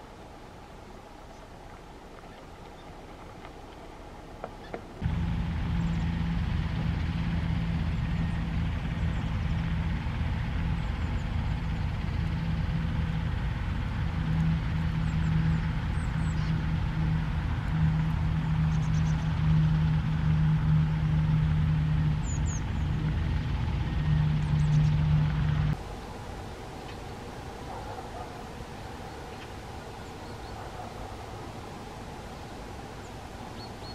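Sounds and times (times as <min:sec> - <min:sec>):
wavering humming tone: 0:05.0 - 0:27.8
low engine drone: 0:05.0 - 0:33.9
faint high bird calls: 0:14.2 - 0:19.6, 0:26.7 - 0:32.0.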